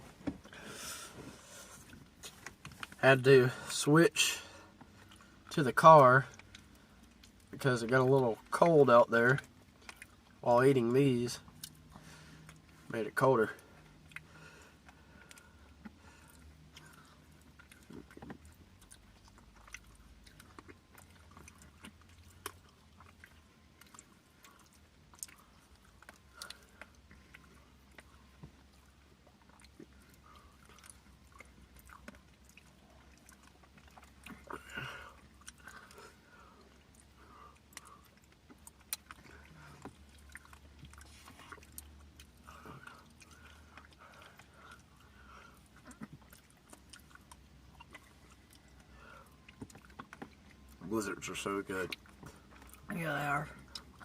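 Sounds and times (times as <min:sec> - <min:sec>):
low hum inside car: 0:00.0 - 0:54.0
soft chewing: 0:00.0 - 0:54.0.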